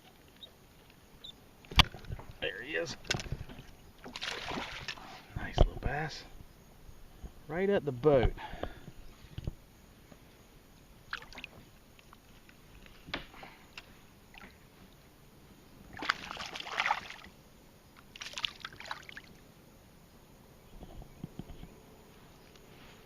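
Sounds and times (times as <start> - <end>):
water splashing and sloshing: 1.6 - 5.9, 11.1 - 13.4, 14.3 - 15.0, 15.8 - 17.4, 18.0 - 19.4.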